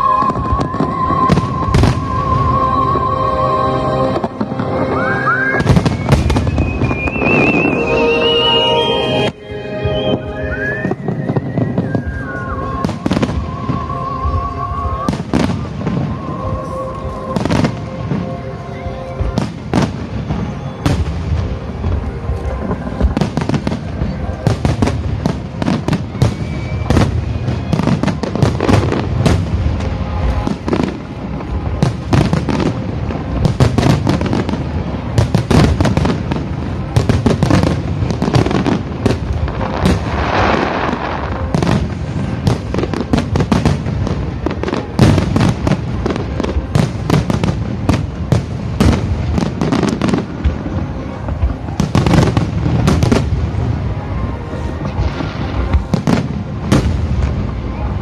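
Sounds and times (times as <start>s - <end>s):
fireworks crackling: 0.0s - 58.0s.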